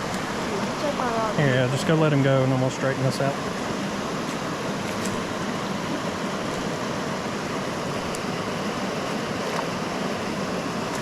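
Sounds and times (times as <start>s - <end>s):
water running over rocks: 0.0s - 11.0s.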